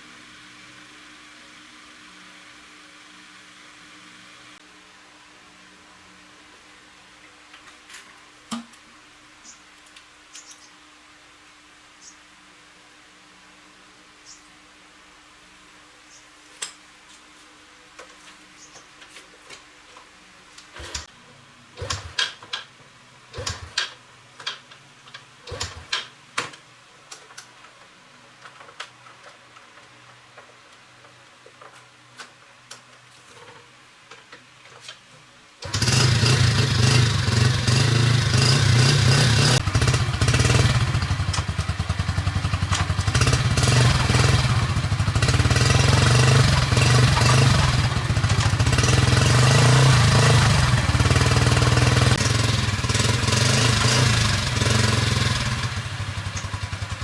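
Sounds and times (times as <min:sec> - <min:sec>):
motorbike engine running: 0:35.6 - 0:57.0.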